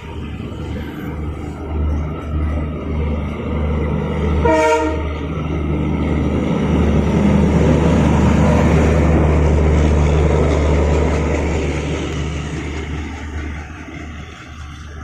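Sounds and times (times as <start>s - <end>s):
train low drone with rail rumble: 0.0s - 15.0s.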